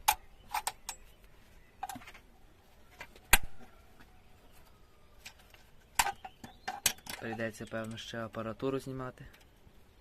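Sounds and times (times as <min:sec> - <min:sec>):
metal tools clinking and knocking: 0:05.2 - 0:08.4.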